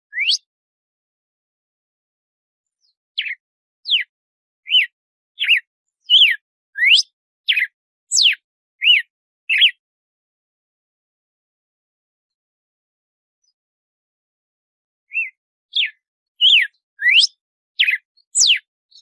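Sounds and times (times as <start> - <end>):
bird whistling song: 0.1 - 0.5, 2.8 - 9.8, 15.1 - 19.0.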